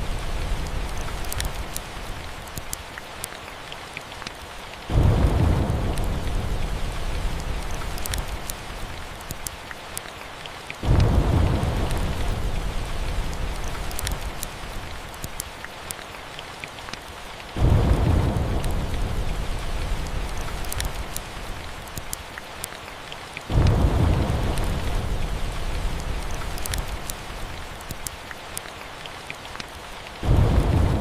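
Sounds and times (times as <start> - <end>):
fireplace crackles: 0.0 - 22.8, 23.4 - 31.0
steady rain: 0.0 - 31.0
rolling thunder: 4.9 - 8.8, 10.8 - 13.8, 17.6 - 20.9, 23.5 - 27.0, 30.2 - 31.0.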